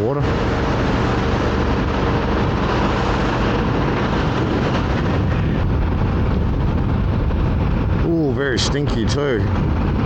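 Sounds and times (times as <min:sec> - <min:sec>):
wind and road noise: 0:00.0 - 0:10.0
motorcycle engine running: 0:00.2 - 0:08.0.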